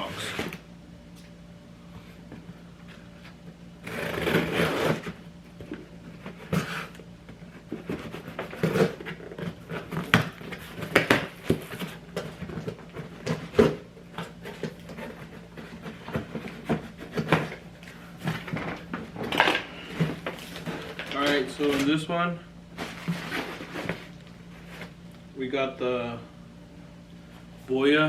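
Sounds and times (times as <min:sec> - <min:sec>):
cardboard and plastic packaging handled: 0:04.3 - 0:25.1.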